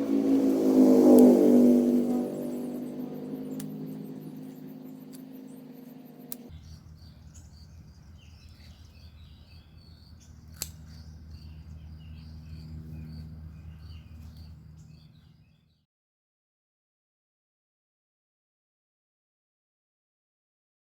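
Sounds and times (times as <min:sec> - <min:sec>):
steady low hum: 0:00.0 - 0:15.5
small birds chirping: 0:00.0 - 0:15.8.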